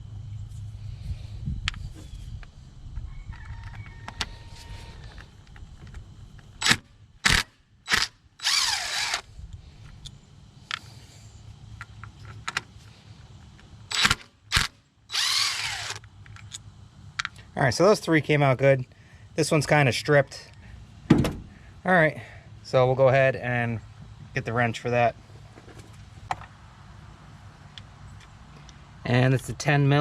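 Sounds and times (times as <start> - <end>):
rooster crowing: 3.0 - 5.2.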